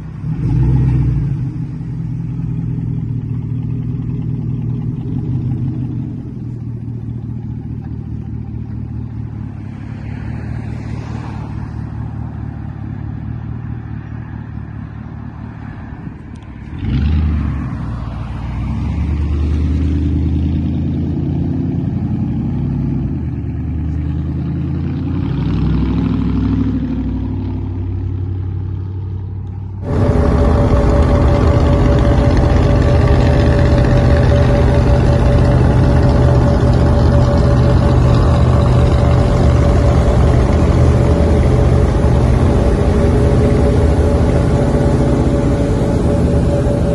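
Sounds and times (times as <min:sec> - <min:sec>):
louder engine sound: 0:00.0 - 0:46.9
pickup truck engine revving: 0:29.8 - 0:46.9.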